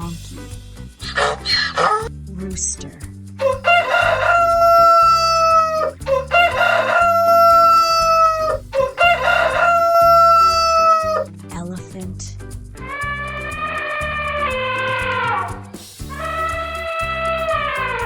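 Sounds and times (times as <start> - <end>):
rooster crowing: 3.4 - 11.3.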